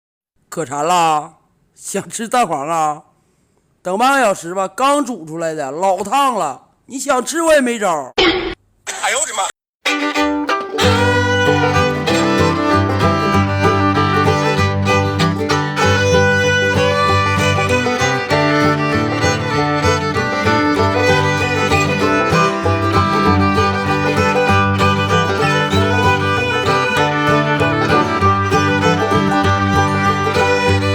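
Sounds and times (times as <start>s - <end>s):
upbeat fiddle music: 9.8s - 30.9s
bass line: 10.7s - 30.9s.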